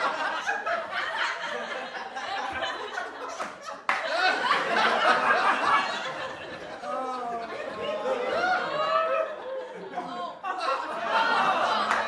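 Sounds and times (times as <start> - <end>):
group laughing: 0.0 - 12.0
light clapping: 3.3 - 4.2.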